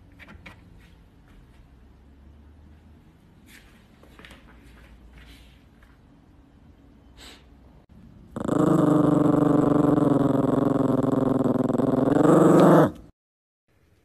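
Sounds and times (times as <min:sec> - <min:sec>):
small dog growling: 0:08.3 - 0:13.1.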